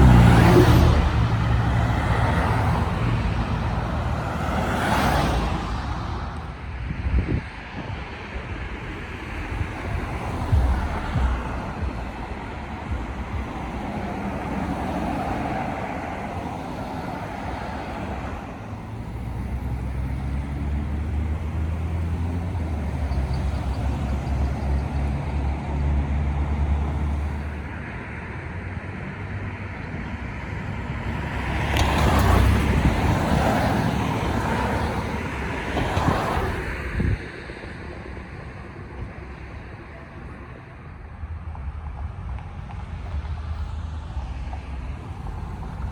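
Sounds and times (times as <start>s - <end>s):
vehicle passing close by: 0.0s - 7.4s, 8.9s - 27.8s, 30.1s - 37.3s
heavy engine humming: 0.0s - 45.9s.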